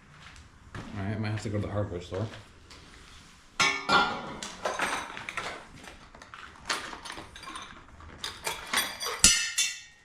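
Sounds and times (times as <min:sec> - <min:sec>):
metal hardware clicking and clinking: 0:06.7 - 0:10.0.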